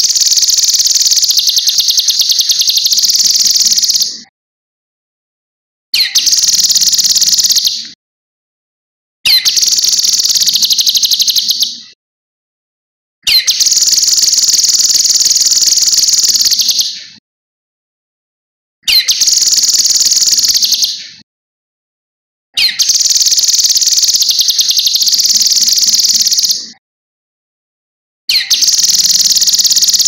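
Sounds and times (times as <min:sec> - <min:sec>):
songbird rattling trills: 0:00.0 - 0:04.1, 0:06.0 - 0:07.7, 0:09.3 - 0:11.7, 0:13.3 - 0:16.9, 0:18.9 - 0:21.0, 0:22.6 - 0:26.6, 0:28.3 - 0:30.0.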